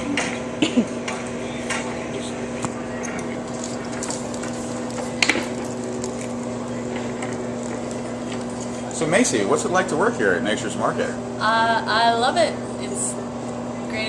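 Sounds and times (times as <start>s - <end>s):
steady hum: 0.0s - 14.0s
metallic clinks and rattles: 1.1s - 2.0s, 3.5s - 7.9s.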